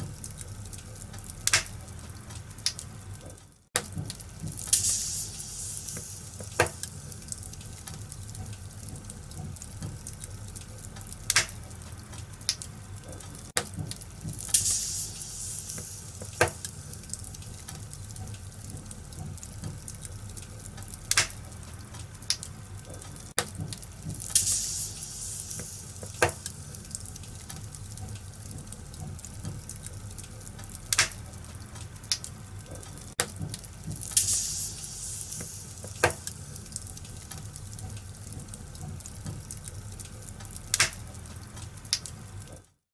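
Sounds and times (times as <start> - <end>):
wood fire crackling: 0.0 - 42.8
sharp pops: 1.5 - 1.8, 3.8 - 6.9, 11.3 - 11.6, 21.1 - 21.4
high hissing: 34.2 - 36.1.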